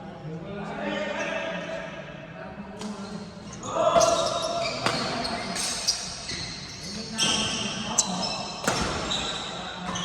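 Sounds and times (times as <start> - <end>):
shoe squeaks on court: 3.0 - 10.0.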